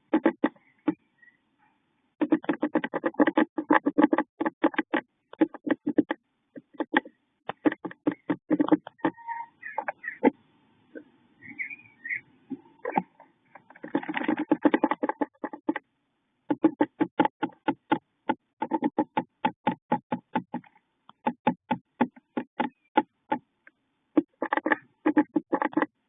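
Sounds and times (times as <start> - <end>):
rapid knocking inside wooden box: 0.0 - 1.0, 2.2 - 9.2, 12.9 - 15.8, 16.5 - 23.4, 24.2 - 26.0.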